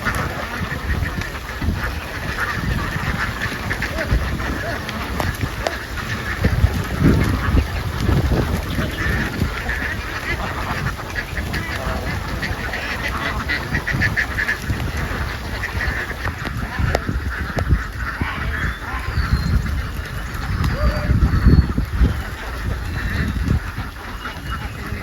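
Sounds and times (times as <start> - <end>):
ducks quacking: 0.0 - 25.0.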